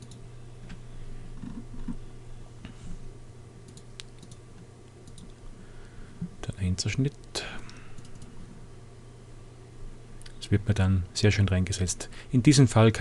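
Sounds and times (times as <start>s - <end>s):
steady low hum: 0.0s - 13.0s
computer mouse and keyboard clicks: 3.7s - 4.4s, 5.0s - 5.4s.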